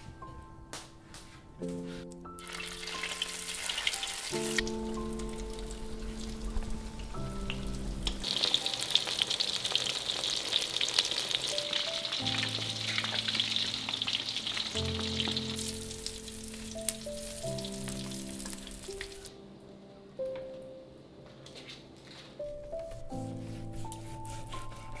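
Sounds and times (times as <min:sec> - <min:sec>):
oil sizzling in a wok: 0:02.4 - 0:19.3.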